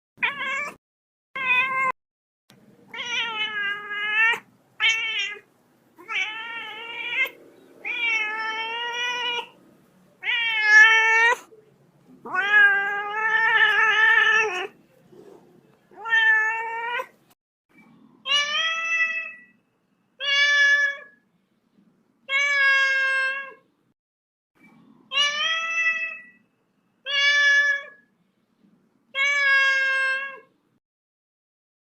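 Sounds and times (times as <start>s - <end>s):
kitten meowing: 2.9s - 9.6s.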